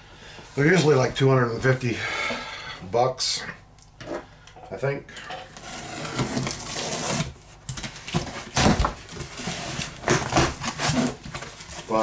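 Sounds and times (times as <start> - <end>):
packaging rustling: 5.5 - 12.0.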